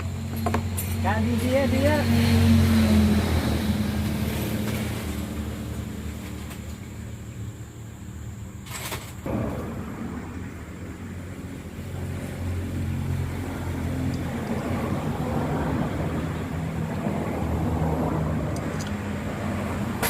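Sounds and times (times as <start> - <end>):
low engine drone: 9.2 - 20.0.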